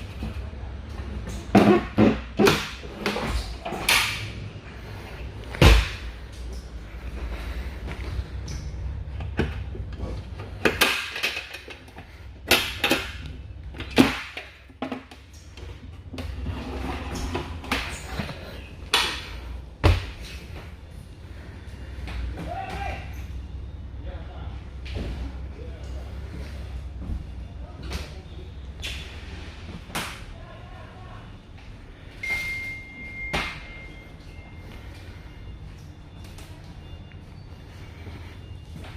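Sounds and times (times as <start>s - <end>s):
low steady hum: 0.0s - 38.9s
steady high-pitched beep: 32.2s - 36.2s.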